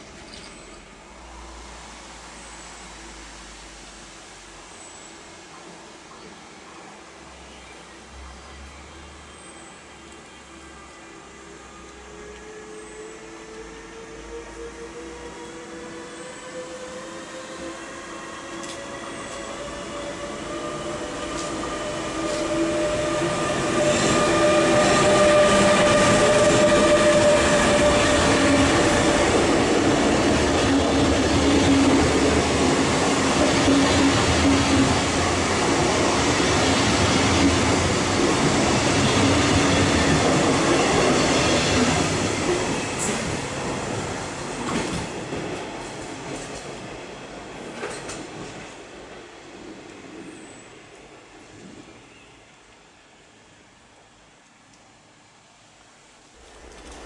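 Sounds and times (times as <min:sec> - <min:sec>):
locomotive whine: 0:09.0 - 0:43.3
train wheels rumbling and clattering: 0:16.5 - 0:50.4, 0:56.4 - 0:57.0.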